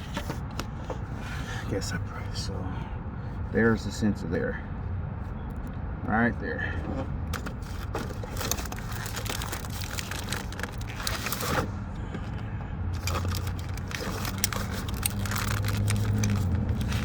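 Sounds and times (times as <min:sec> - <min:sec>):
wiring crackles and clicks: 0:07.3 - 0:11.8, 0:12.9 - 0:17.0.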